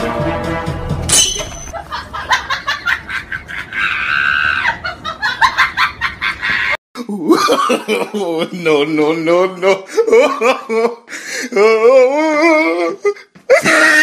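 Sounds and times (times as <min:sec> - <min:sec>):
people laughing: 0:01.7 - 0:11.0.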